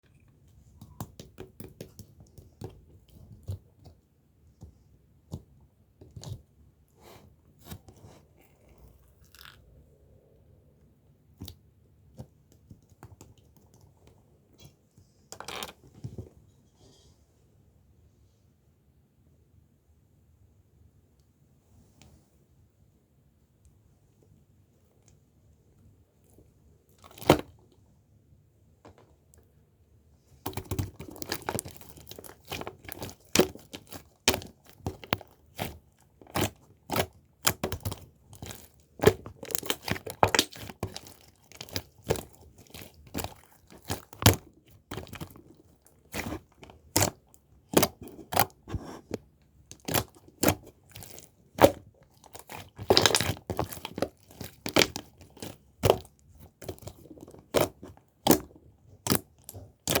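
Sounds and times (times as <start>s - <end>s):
clicks and crinkling from handling: 24.9s - 27.8s, 30.3s - 60.0s.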